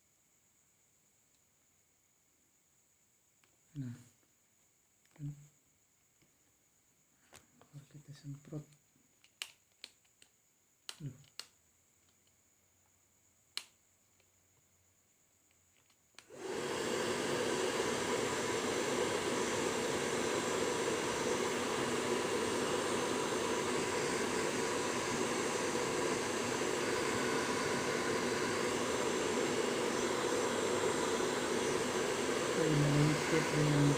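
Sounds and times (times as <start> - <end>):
electric blower rushing air: 16.2 - 33.9.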